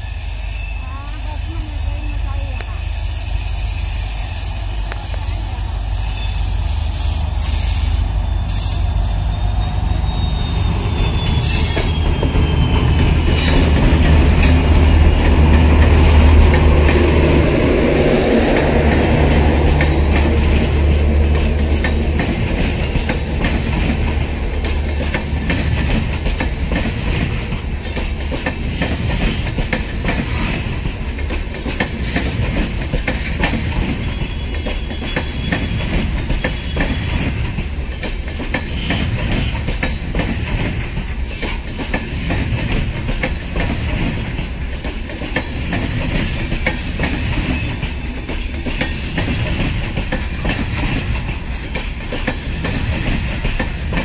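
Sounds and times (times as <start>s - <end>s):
wheels clacking over rail joints: 10.9s - 54.0s.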